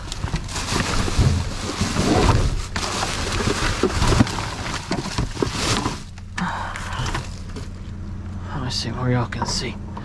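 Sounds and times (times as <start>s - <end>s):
trash rustling in a dumpster: 0.0s - 7.8s.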